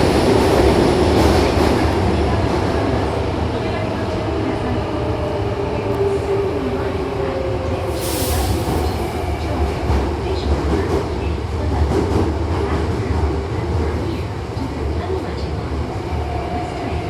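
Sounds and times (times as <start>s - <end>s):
train rumbling on rails: 0.0s - 17.0s
brief hiss: 7.9s - 9.3s.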